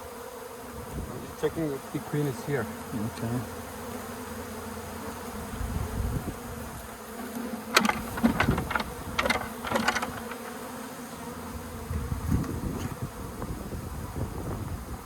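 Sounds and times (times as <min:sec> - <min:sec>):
honeybee colony buzzing: 0:00.0 - 0:15.0
sharp clicks and knocks: 0:07.7 - 0:10.5.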